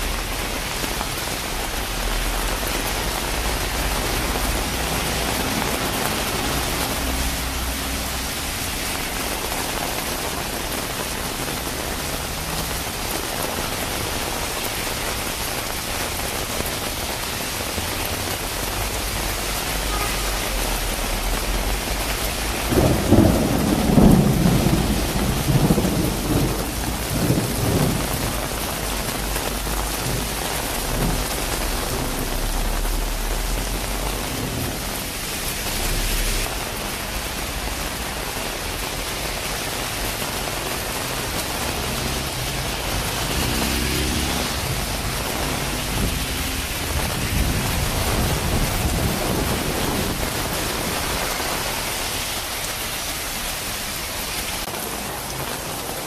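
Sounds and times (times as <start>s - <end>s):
heavy rain on pavement: 0.0s - 56.0s
rain on umbrella: 0.0s - 56.0s
rolling thunder: 21.0s - 36.8s, 41.9s - 51.8s.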